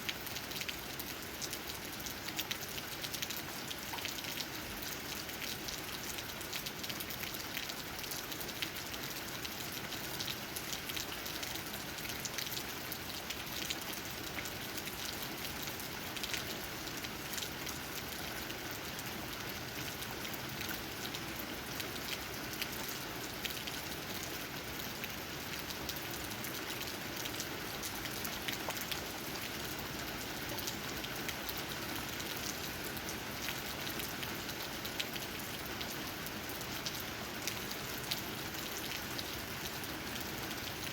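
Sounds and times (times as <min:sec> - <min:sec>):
rain pattering on leaves: 0:00.0 - 0:40.9.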